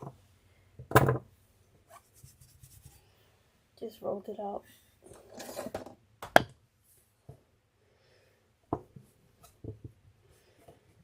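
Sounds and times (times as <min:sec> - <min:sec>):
hands rubbing clay: 0:01.9 - 0:03.1.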